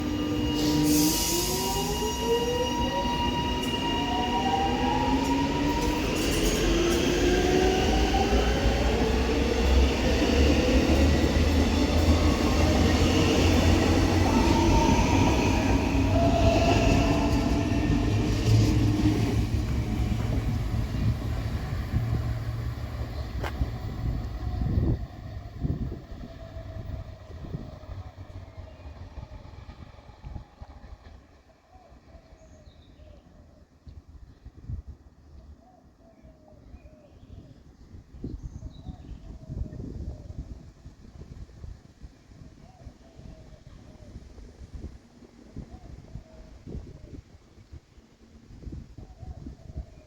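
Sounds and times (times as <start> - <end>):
train traction motor whine: 0.0 - 30.4
wheels rumbling on rail: 0.0 - 32.1.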